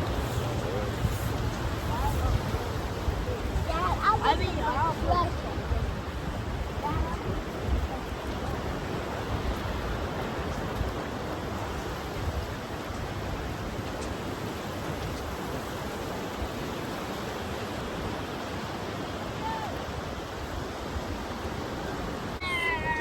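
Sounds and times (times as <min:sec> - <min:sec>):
surf breaking on beach: 0:00.0 - 0:23.0
wind: 0:00.0 - 0:23.0.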